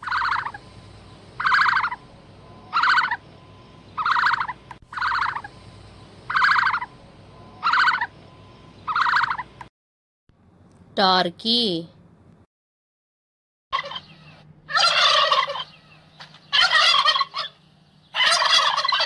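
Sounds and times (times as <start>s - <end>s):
large bird calling harshly: 0.0s - 0.7s, 1.4s - 3.3s, 4.0s - 5.6s, 6.3s - 7.0s, 7.6s - 8.2s, 8.8s - 9.5s, 13.8s - 19.0s.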